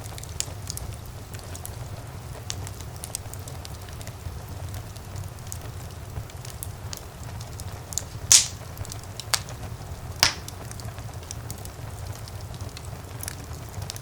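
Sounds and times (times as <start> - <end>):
low rumble of flames: 0.0 - 14.0
wood fire crackling: 0.0 - 14.0
sharp loud fire pops: 8.3 - 9.5, 10.2 - 10.6.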